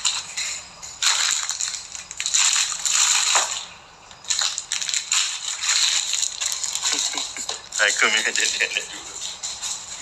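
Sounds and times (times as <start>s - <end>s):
plastic packaging crinkling: 4.2s - 10.0s.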